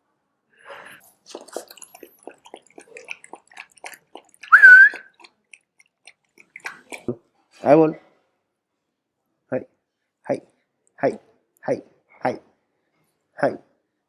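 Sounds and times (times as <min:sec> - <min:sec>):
parakeet whistled call: 0:04.5 - 0:05.0.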